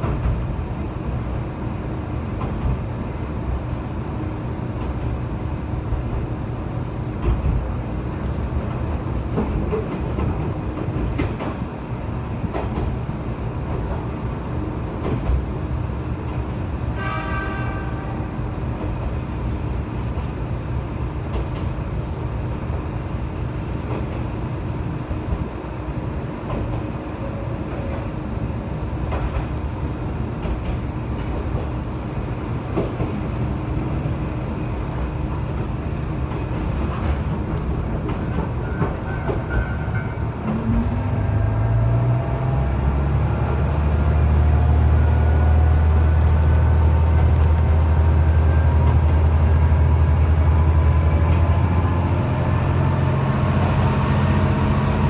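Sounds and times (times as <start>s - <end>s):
rail-joint clicks: 0.0s - 0.5s, 2.3s - 2.8s, 7.1s - 14.4s, 15.0s - 15.5s, 21.2s - 21.8s, 23.8s - 24.4s, 26.4s - 28.2s, 29.0s - 29.6s, 30.3s - 31.8s, 32.7s - 34.0s, 34.9s - 41.3s, 46.2s - 47.8s, 48.7s - 49.3s, 51.2s - 51.7s
diesel railcar engine: 0.0s - 55.0s.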